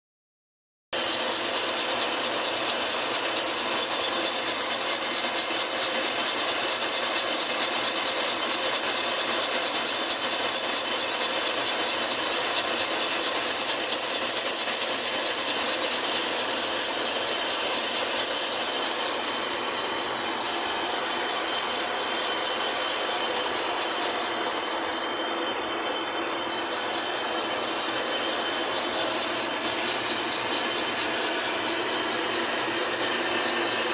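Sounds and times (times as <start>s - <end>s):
boring machine cutting metal: 1.0s - 33.9s.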